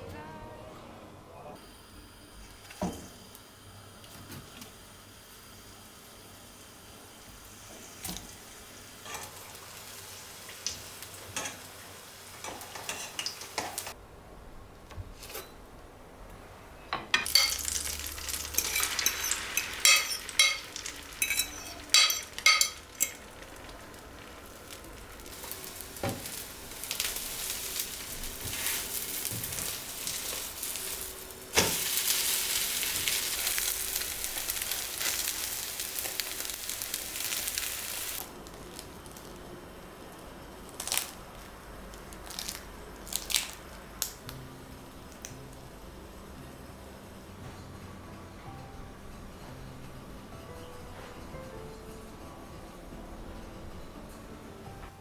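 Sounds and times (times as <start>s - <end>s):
food sizzling in a hot pan: 4.8s - 14.0s, 17.2s - 38.3s.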